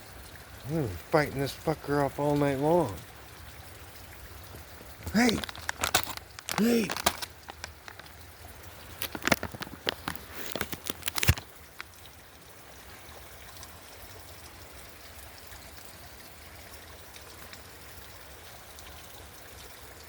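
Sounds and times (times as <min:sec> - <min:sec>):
faint rushing water: 0:00.0 - 0:20.0
clicks and knocks: 0:05.4 - 0:08.1.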